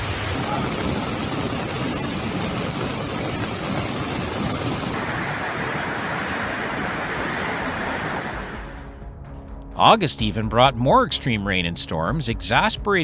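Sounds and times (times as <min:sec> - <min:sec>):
rushing water from torrential rain: 0:00.0 - 0:09.0.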